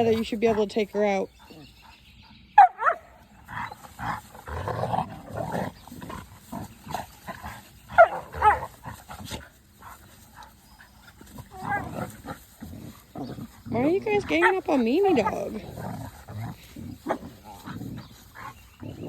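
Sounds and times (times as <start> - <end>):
dog yelping: 2.6 - 3.8, 7.9 - 8.7
dogs scuffling: 3.2 - 19.0.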